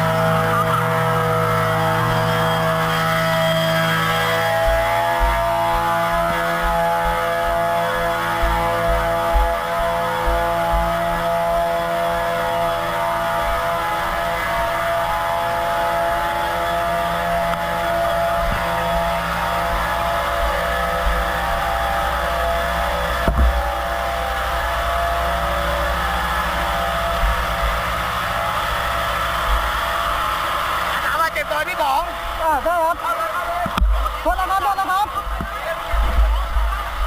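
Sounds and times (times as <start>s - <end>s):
vehicle engine humming: 0.0s - 37.0s
short knock: 23.3s - 23.6s.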